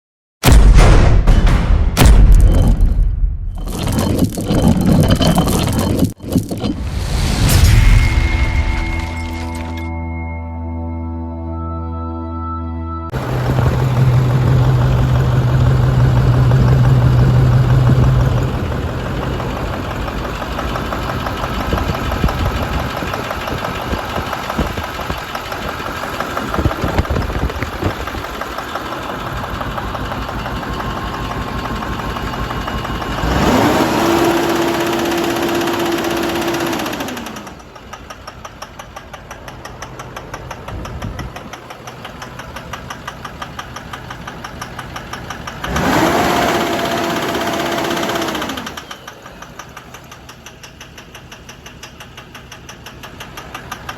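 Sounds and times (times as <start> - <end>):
diesel engine knocking and revving: 13.1 - 53.9.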